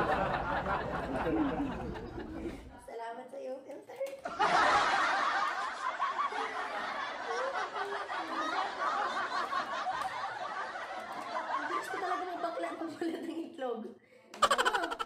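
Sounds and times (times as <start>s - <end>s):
snickering and giggling: 0.0s - 2.7s, 4.3s - 12.7s, 14.4s - 15.0s.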